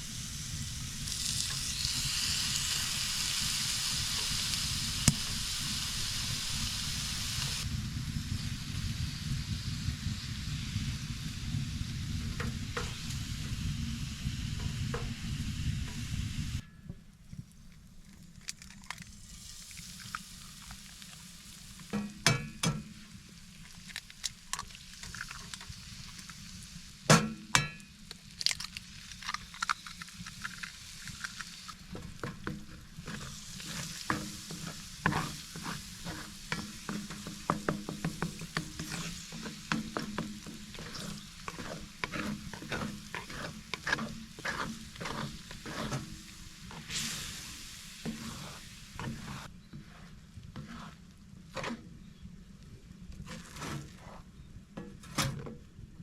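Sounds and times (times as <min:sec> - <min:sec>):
wood fire crackling and popping: 0:00.0 - 0:08.1, 0:17.3 - 0:49.5.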